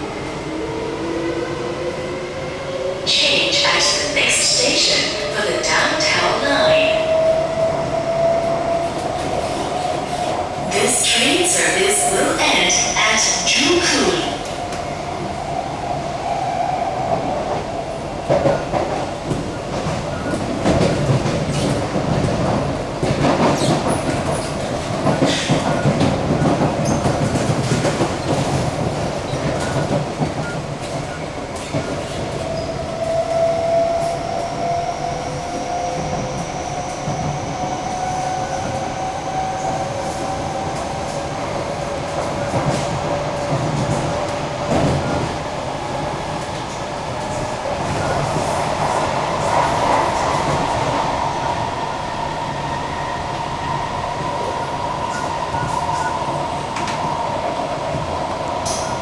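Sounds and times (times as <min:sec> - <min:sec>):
train rumble: 0:00.0 - 0:59.0.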